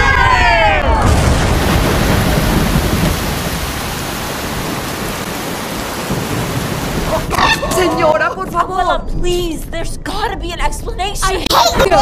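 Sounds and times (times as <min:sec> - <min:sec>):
thunder rumbling: 0:00.8 - 0:09.8
heavy rain: 0:01.0 - 0:08.0.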